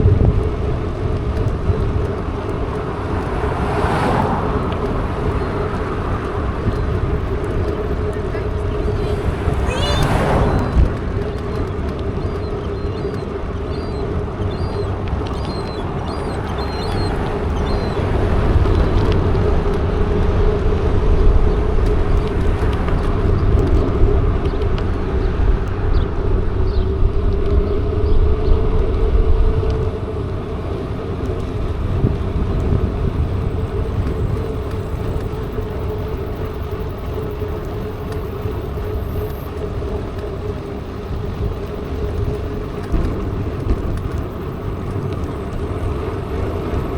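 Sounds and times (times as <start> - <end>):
bike tyre hum: 0.0 - 46.9
wind noise on microphone: 0.0 - 46.9
bird chirping: 8.3 - 19.1.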